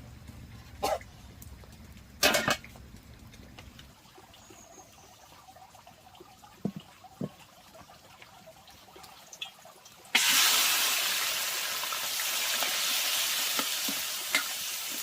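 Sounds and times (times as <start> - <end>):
soft low water drips: 0.0 - 10.2.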